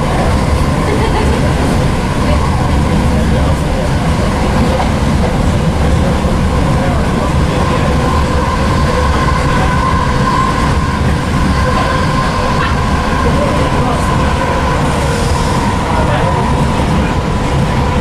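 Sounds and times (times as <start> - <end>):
steady train whine: 0.0 - 18.0
train wheels rumbling on track: 0.0 - 18.0.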